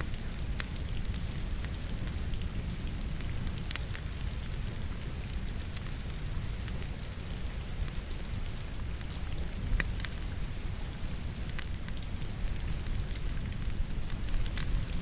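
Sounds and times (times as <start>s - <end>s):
fire crackling and popping: 0.0s - 15.0s
steady rain: 0.0s - 15.0s.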